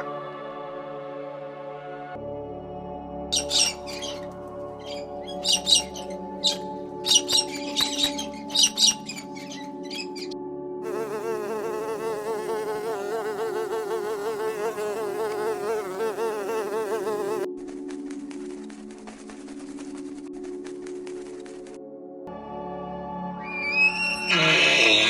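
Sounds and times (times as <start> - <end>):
sharp bird chirps: 3.3 - 10.3
flying insect buzzing: 5.4 - 17.5.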